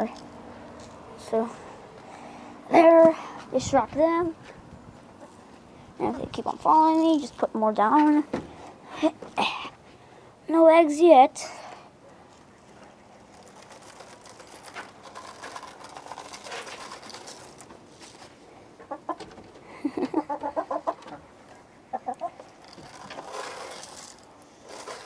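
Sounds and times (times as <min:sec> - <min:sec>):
scratching and rustling: 0:12.3 - 0:18.5, 0:19.1 - 0:25.0
chickens clucking: 0:18.7 - 0:23.3.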